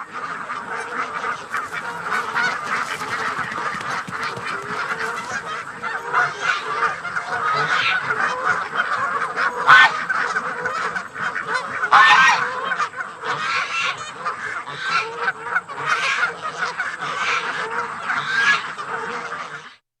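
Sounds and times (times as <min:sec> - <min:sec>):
flock of waterfowl calling: 0:00.0 - 0:19.8.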